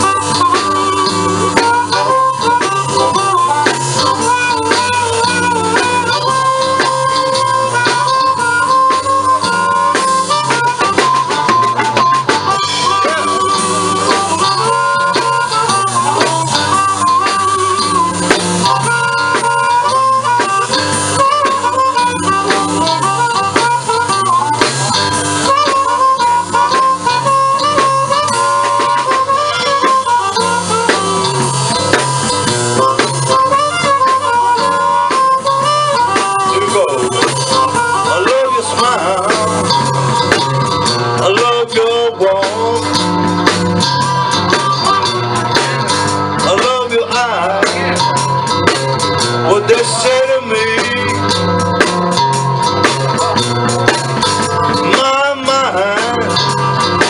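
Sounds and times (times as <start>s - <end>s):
drums: 0.0s - 57.0s
guitar: 0.0s - 57.0s
harmonica solo: 0.0s - 57.0s.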